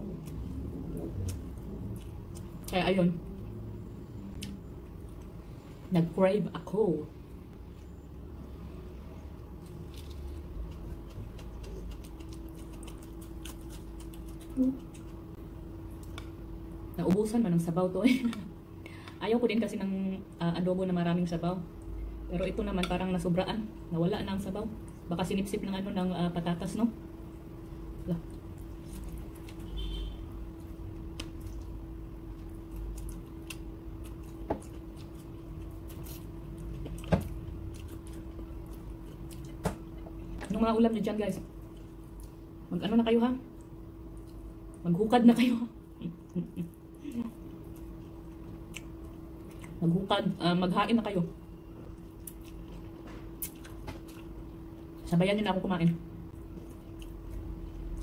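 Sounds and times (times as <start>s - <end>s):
person chewing food: 0.0s - 2.7s, 9.4s - 16.4s, 28.2s - 40.4s, 46.2s - 49.8s, 51.8s - 55.0s, 56.3s - 58.0s
low hum: 0.0s - 58.0s.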